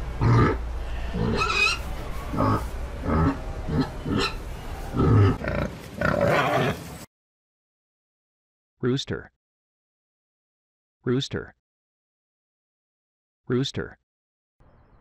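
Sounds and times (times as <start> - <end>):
pig grunting and oinking: 0.1 - 6.9.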